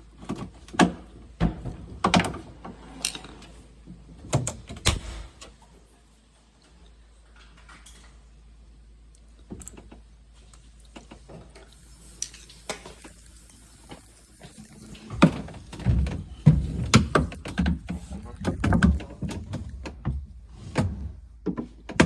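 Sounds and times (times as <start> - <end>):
freezer drawer clunking on rails: 15.2 - 22.0.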